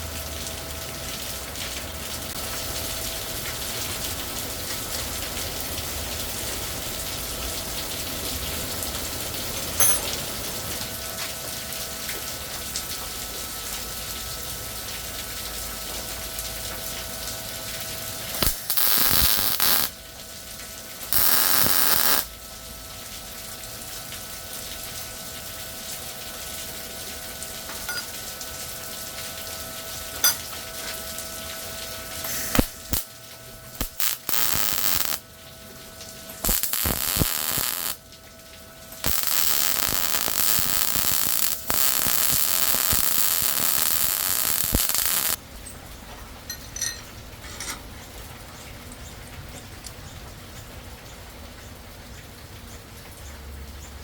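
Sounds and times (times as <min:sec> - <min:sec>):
welder crackling sizzle: 0:00.0 - 0:08.7, 0:14.3 - 0:22.8, 0:27.0 - 0:45.4
faint hum: 0:16.3 - 0:19.9, 0:21.0 - 0:22.4, 0:29.4 - 0:45.4
hissing bursts: 0:18.4 - 0:19.9, 0:21.1 - 0:22.3, 0:33.8 - 0:35.2, 0:36.4 - 0:38.0, 0:39.0 - 0:45.4.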